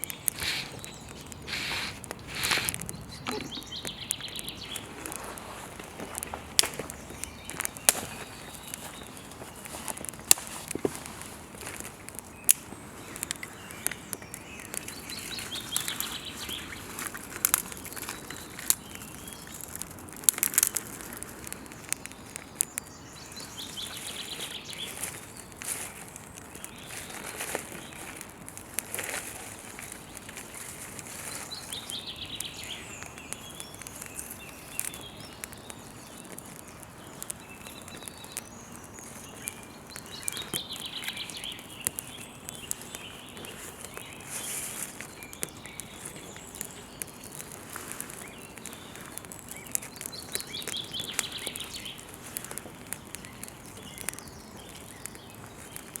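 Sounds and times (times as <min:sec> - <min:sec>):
campfire crackling and popping: 0:00.0 - 0:56.0
bird warbling: 0:00.2 - 0:04.1.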